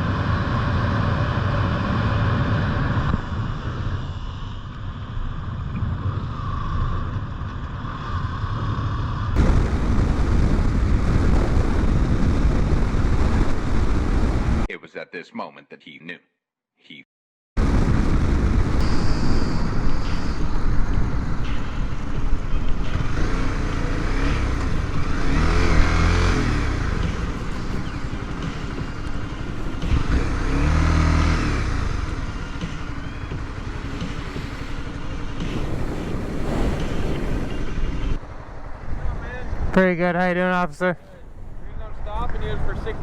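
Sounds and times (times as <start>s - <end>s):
road noise: 0.0s - 14.7s, 18.4s - 43.0s
motorcycle engine: 18.4s - 39.1s.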